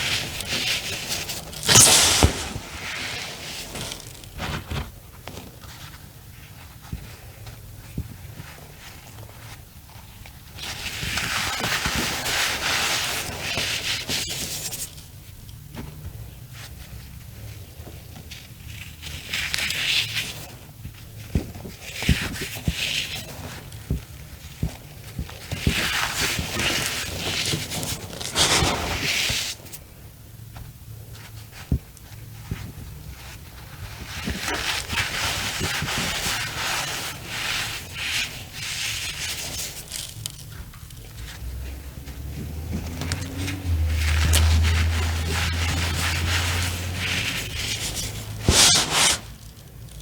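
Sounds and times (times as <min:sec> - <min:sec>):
cornstarch crunching by hand: 0:01.5 - 0:04.4.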